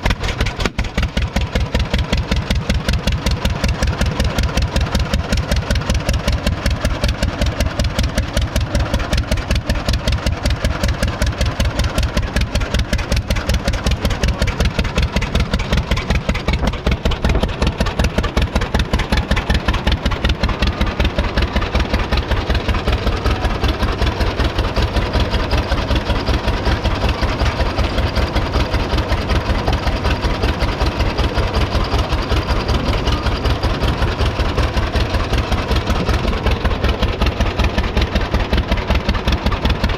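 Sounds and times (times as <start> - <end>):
tractor engine popping exhaust: 0.0 - 39.9.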